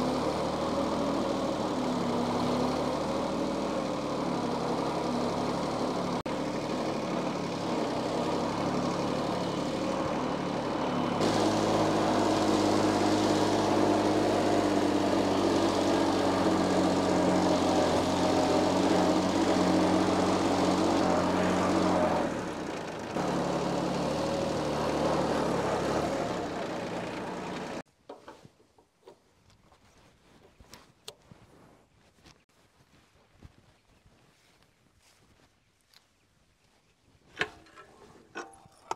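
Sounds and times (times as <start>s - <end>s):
diesel engine running: 0.0s - 27.8s.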